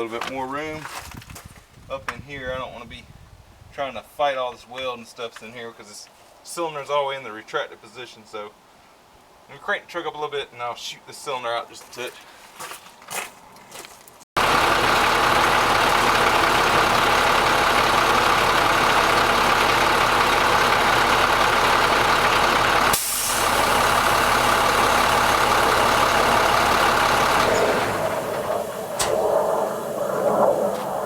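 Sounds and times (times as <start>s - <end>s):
truck engine running: 14.4s - 31.0s
sharp click: 29.0s - 29.3s.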